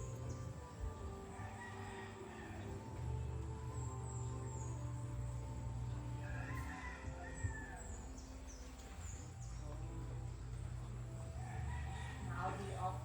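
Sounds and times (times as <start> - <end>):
rooster crowing: 0.0 - 8.2, 11.3 - 13.0
soft background music: 0.0 - 13.0.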